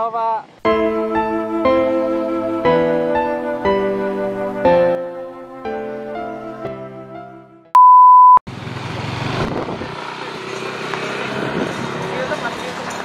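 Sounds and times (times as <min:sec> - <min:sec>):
gentle piano music: 0:00.6 - 0:07.7
censor bleep tone: 0:07.7 - 0:08.4
street traffic noise: 0:08.5 - 0:13.0.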